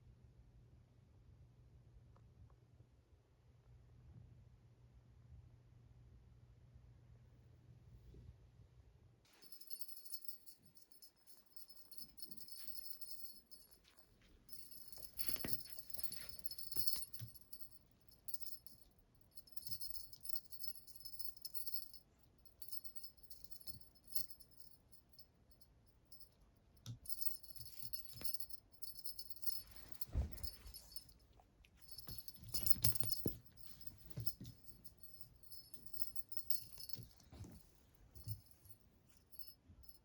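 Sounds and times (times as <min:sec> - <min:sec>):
small bell jingling: 0:09.3 - 0:40.0.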